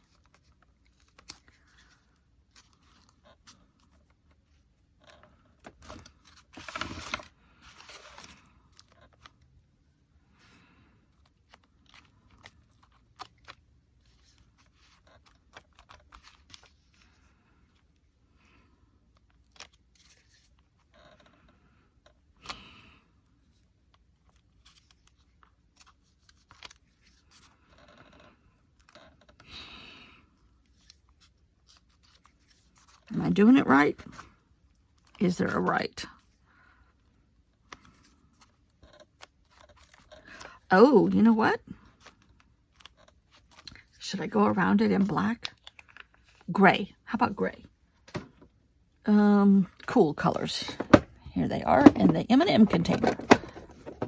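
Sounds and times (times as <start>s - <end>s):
paper rustling: 5.6s - 9.4s.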